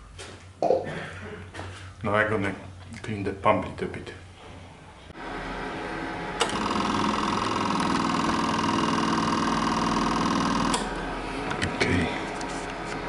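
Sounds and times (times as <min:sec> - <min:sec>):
small electric motor whirring: 0:06.4 - 0:10.9.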